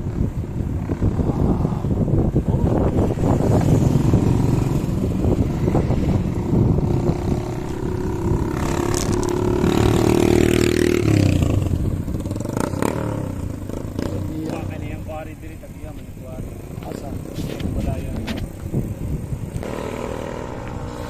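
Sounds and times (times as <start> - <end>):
road rumble while cycling: 0.0 - 21.0
wind: 0.0 - 21.0
vehicle engine rising: 1.0 - 15.3.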